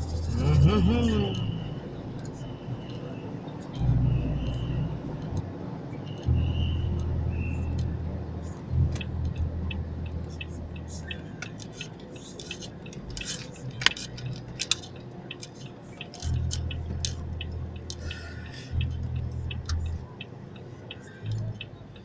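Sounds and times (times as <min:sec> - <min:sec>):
car engine rumble: 0:00.0 - 0:22.0.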